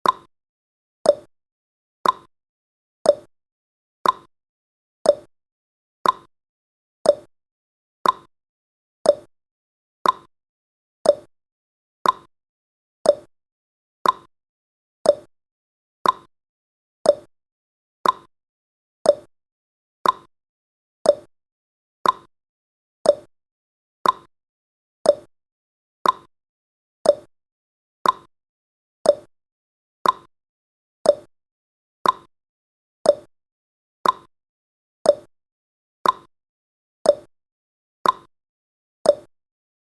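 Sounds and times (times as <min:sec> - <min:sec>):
clock ticking: 0:02.0 - 0:02.3, 0:06.0 - 0:06.3, 0:08.0 - 0:08.3, 0:10.0 - 0:10.3, 0:12.0 - 0:12.3, 0:14.0 - 0:14.3, 0:15.1 - 0:15.3, 0:16.0 - 0:16.3, 0:18.0 - 0:18.3, 0:20.0 - 0:20.3, 0:21.1 - 0:21.3, 0:22.0 - 0:22.3, 0:24.0 - 0:24.3, 0:25.1 - 0:25.3, 0:26.0 - 0:26.3, 0:27.1 - 0:27.3, 0:28.0 - 0:28.3, 0:29.1 - 0:29.3, 0:30.0 - 0:30.3, 0:31.1 - 0:31.3, 0:32.0 - 0:32.3, 0:34.0 - 0:34.3, 0:36.0 - 0:36.3, 0:38.0 - 0:38.3.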